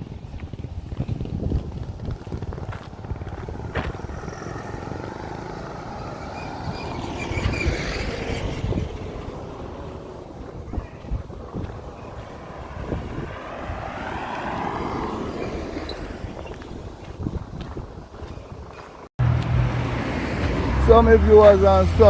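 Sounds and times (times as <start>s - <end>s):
motor vehicle passing: 0.0s - 22.0s.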